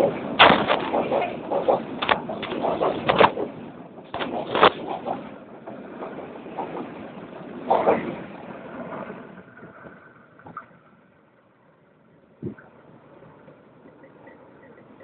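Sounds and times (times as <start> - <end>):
train wheels rumbling on rails: 0.0 - 11.5
loud clatter: 0.1 - 5.3.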